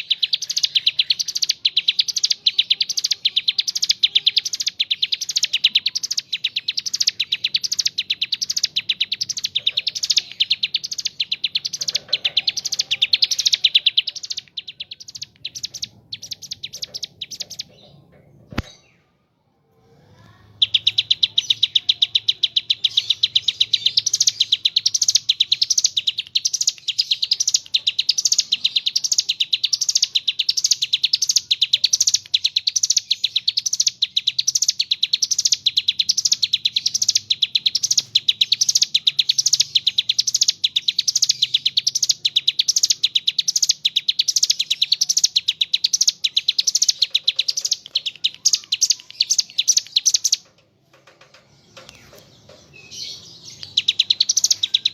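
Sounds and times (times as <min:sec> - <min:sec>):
bird singing rapid trill: 0:00.0 - 0:19.1, 0:20.2 - 0:54.9.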